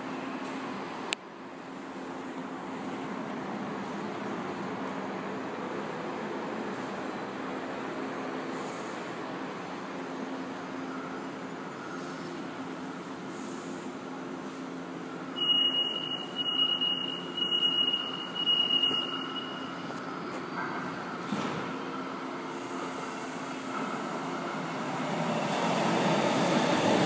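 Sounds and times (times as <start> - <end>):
train electrical hum: 0.0 - 27.0
high warning tone beeps: 15.4 - 21.1.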